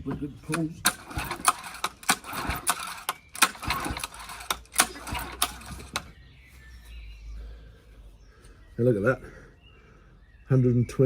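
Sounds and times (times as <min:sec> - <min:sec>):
pull-starter cranking engine: 0:00.5 - 0:06.1
rattling mechanical clicks: 0:00.5 - 0:06.1.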